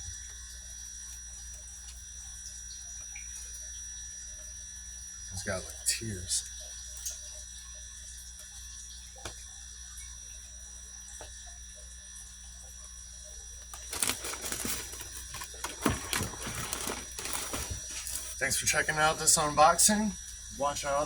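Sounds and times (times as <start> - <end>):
faint hum: 0.0 - 21.0
rustling and clattering handling: 13.7 - 18.4.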